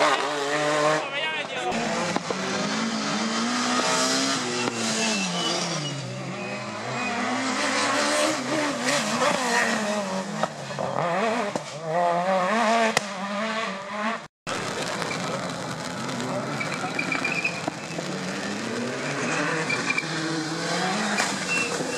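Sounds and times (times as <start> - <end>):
rally car engine revving: 0.0 - 21.9.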